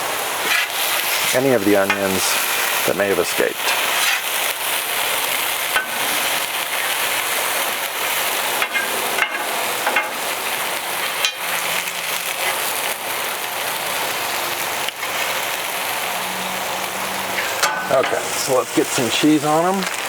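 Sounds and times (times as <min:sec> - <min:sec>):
burgers sizzling on a griddle: 0:00.0 - 0:20.0
metal spatula scraping steel: 0:00.4 - 0:02.7, 0:03.6 - 0:04.4, 0:17.2 - 0:18.6.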